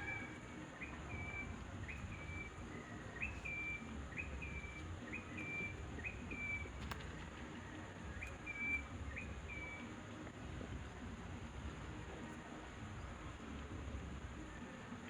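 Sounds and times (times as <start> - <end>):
bird calling rising note: 0.0 - 6.8.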